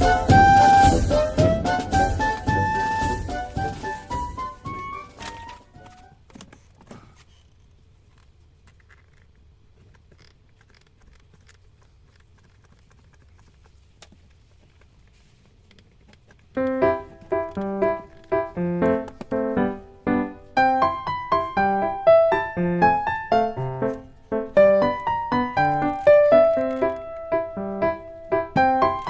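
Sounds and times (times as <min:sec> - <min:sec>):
piano-like keyboard melody: 0:00.0 - 0:06.1, 0:16.6 - 0:29.0
background music melody: 0:00.0 - 0:06.2, 0:16.6 - 0:29.0.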